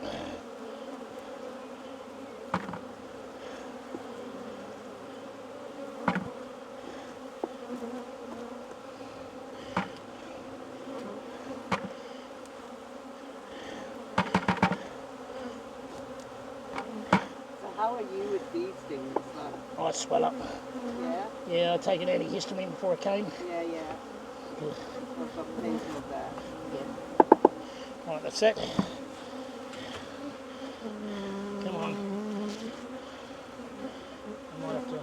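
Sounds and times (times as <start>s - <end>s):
bees buzzing: 0.0s - 35.0s
sharp knocks: 2.6s - 2.8s, 6.0s - 6.3s, 11.7s - 12.0s, 14.2s - 14.8s, 27.2s - 27.6s.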